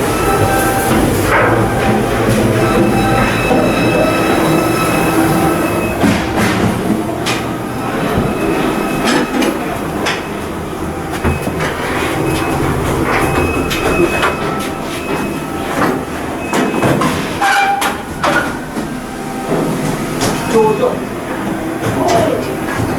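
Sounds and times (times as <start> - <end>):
mechanical rumble: 0.0 - 16.5
high squeals: 0.0 - 22.5.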